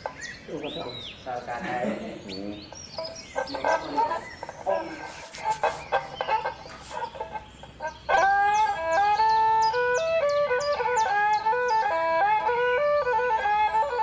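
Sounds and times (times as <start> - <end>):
chickens clucking: 0.0 - 14.0
slow flute melody: 8.1 - 14.0.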